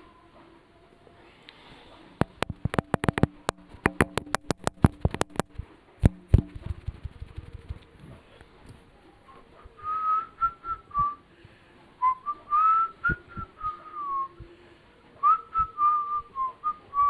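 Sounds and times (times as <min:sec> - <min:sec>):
sharp clicks and knocks: 0:02.2 - 0:08.0.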